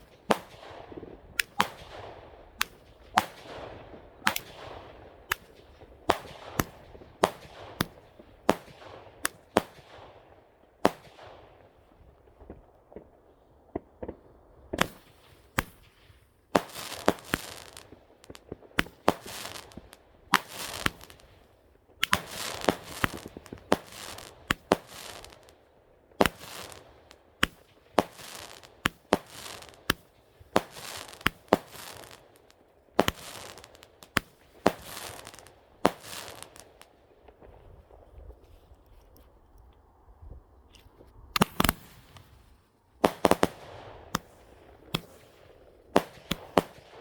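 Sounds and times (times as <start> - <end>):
firework bangs: 0.0 - 10.1, 14.8 - 25.6, 26.2 - 36.9, 41.4 - 42.4, 43.0 - 47.0
firework hissing fizz: 16.6 - 21.3, 22.0 - 25.5, 26.2 - 26.8, 27.4 - 30.0, 30.6 - 36.8.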